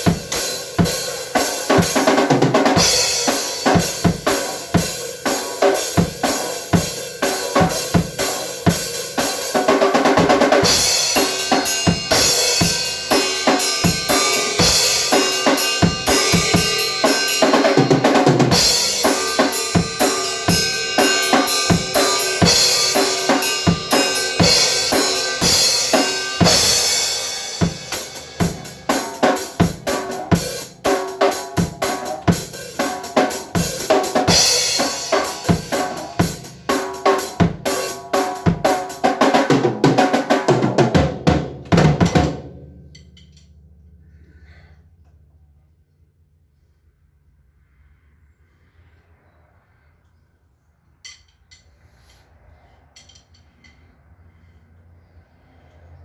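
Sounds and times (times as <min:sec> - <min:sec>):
cymbal wash: 0:10.6 - 0:17.8, 0:18.4 - 0:38.4
snare and bass drum hits: 0:27.6 - 0:42.7.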